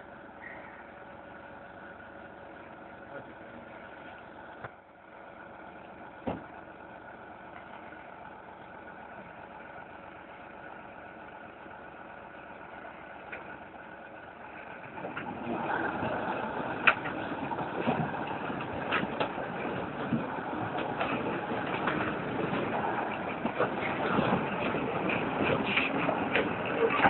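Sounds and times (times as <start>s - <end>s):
heavy vehicle engine idling: 0.0s - 27.0s
rattling: 14.6s - 27.0s.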